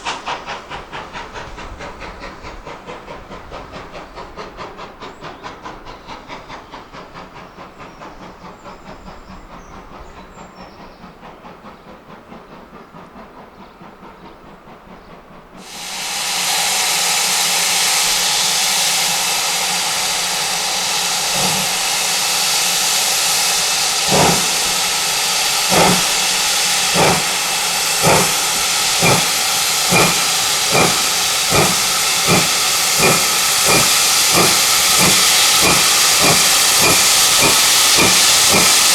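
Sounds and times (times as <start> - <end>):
loud hiss of steam: 0.0 - 13.0, 15.5 - 38.9
steam locomotive pulsing: 0.0 - 38.9
locomotive exhaust beats: 15.2 - 38.9.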